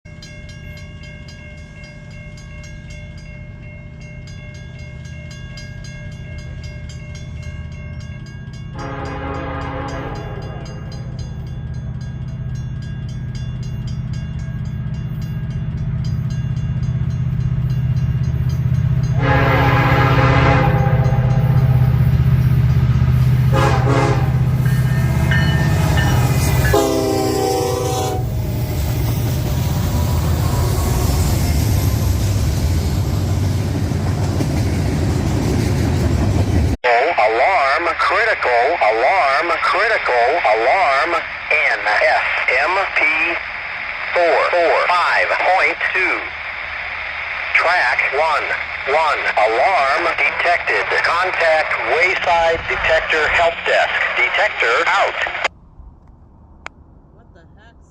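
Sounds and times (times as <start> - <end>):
diesel locomotive engine rumble: 0.1 - 57.9
locomotive air horn: 8.8 - 10.9, 19.1 - 21.9, 23.4 - 25.3, 26.2 - 28.4.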